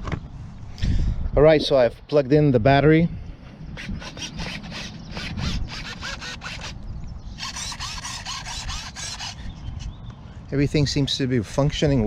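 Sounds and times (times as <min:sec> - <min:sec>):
servos buzzing: 0:03.8 - 0:10.0.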